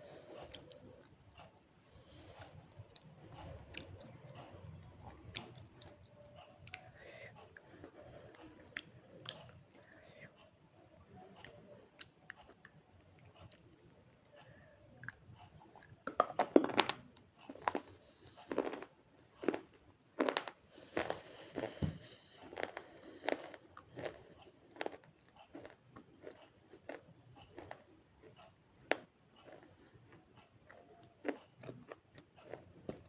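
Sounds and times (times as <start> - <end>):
person chewing crunchy clay: 15.0 - 33.0.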